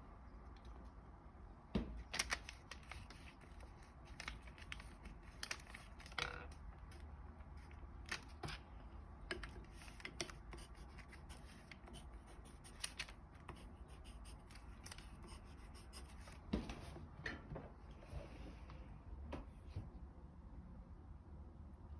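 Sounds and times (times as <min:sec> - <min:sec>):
paper being folded: 0:02.0 - 0:06.2, 0:09.7 - 0:13.2.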